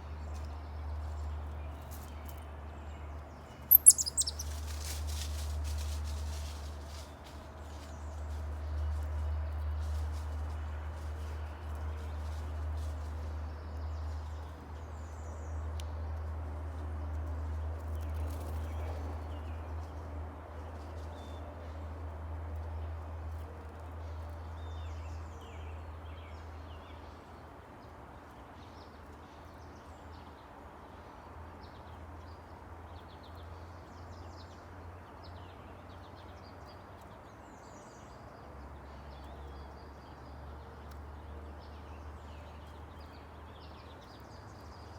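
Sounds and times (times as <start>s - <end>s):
small birds chirping: 3.4s - 5.0s.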